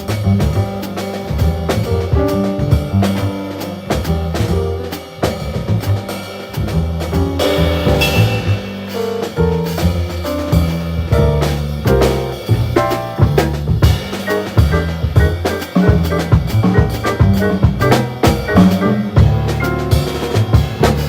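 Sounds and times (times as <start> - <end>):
double bass: 0.0 - 21.0
drum kit: 0.0 - 21.0
piano: 0.0 - 21.0
cymbal wash: 7.8 - 9.0.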